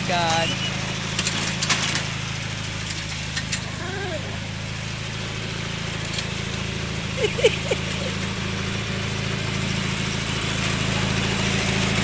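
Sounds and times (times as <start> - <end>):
tractor engine running: 0.0 - 12.0
short squeaky calls: 0.4 - 0.8.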